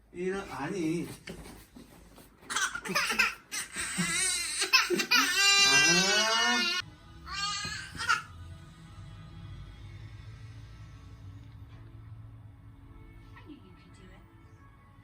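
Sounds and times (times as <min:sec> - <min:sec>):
baby wailing: 0:02.5 - 0:08.3.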